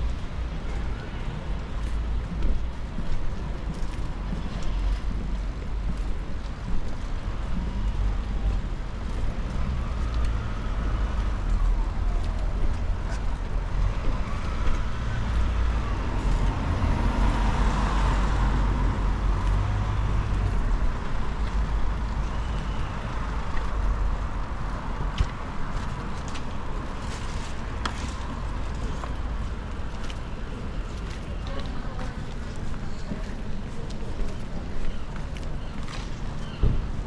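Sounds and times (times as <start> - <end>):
steady low rumble: 0.0 - 37.0
traffic on wet road: 0.0 - 37.0
vehicle passing: 9.4 - 22.2.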